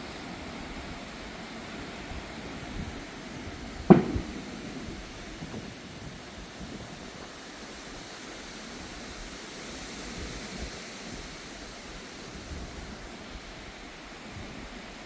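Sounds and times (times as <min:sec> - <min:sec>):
rain: 0:00.0 - 0:15.0
wind: 0:00.0 - 0:15.0.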